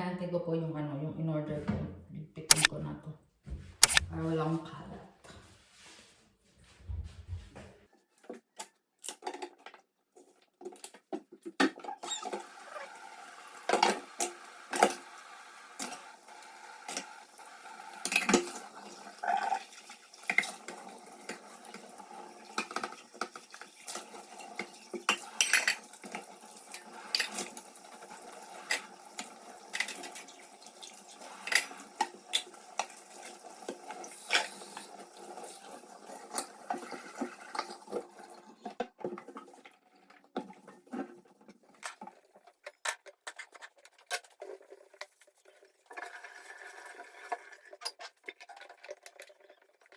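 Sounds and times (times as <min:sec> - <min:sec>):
dishes and cutlery clattering: 0:24.6 - 0:26.2.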